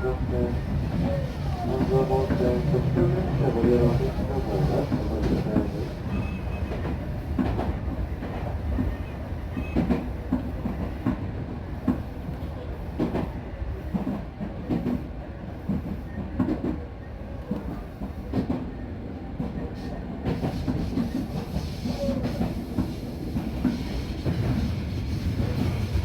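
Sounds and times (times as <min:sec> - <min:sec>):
train low rumble: 0:00.0 - 0:26.0.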